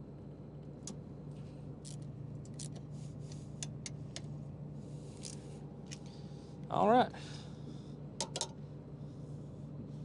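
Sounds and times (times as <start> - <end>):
steady low hum: 0.0 - 10.0
sharp metal clicks: 8.2 - 8.6.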